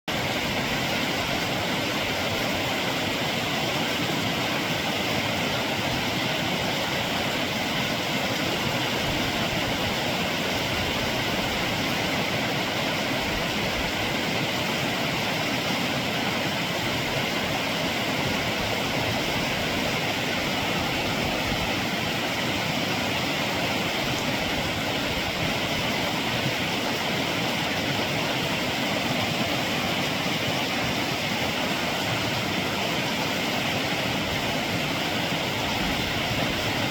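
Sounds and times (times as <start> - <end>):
running water rushing: 0.1 - 36.9.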